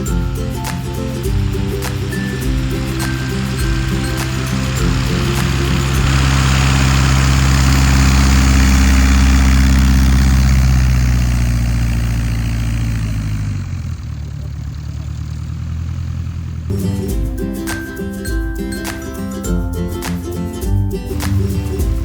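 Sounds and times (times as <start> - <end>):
light aircraft engine passing: 0.0 - 15.6.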